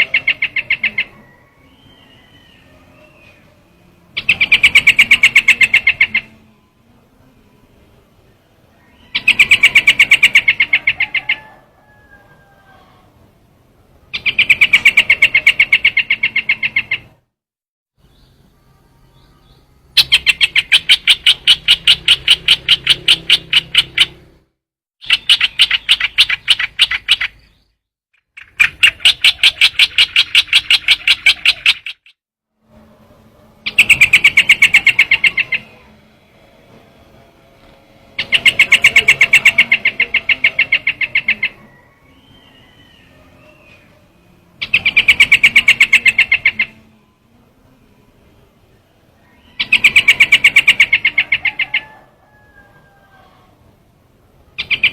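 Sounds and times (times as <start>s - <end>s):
bird call chattering: 0.0s - 3.5s, 4.2s - 6.4s, 8.8s - 11.6s, 14.1s - 17.1s, 20.0s - 24.3s, 25.0s - 32.2s, 33.6s - 36.0s, 38.1s - 46.8s, 49.3s - 52.0s, 54.6s - 54.9s.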